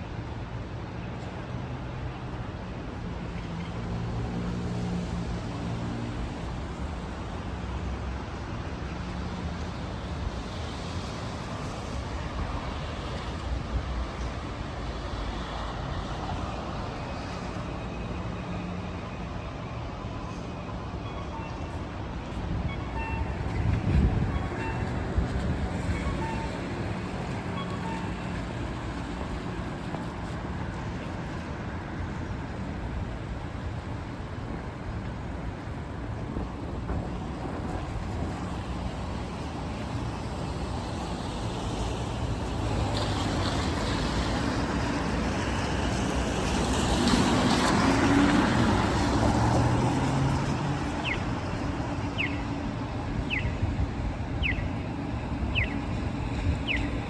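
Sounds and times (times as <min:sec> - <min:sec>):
tyres hissing on wet road: 0:37.2 - 0:51.0
heavy rain on street: 0:37.2 - 0:51.4.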